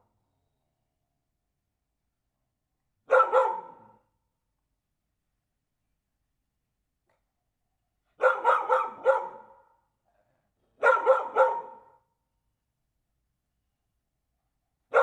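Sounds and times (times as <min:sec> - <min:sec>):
dog barking: 0:03.1 - 0:04.1, 0:08.2 - 0:09.8, 0:10.8 - 0:12.1.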